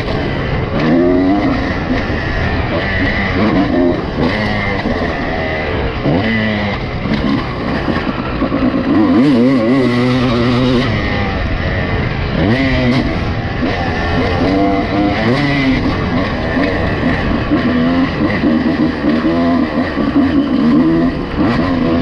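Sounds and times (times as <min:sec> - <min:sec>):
motocross bike engine revving: 0:00.0 - 0:22.0.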